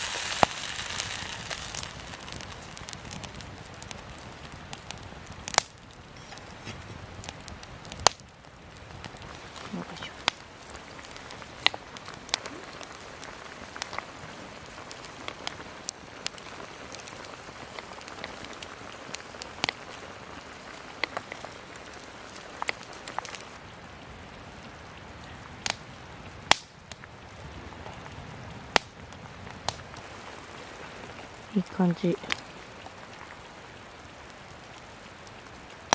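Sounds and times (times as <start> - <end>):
campfire crackling and popping: 0.0 - 35.9.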